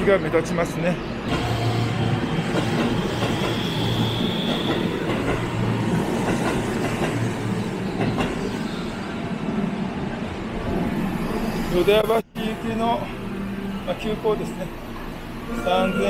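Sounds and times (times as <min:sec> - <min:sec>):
electric train rumbling: 0:00.0 - 0:16.0
high train whine: 0:00.0 - 0:16.0.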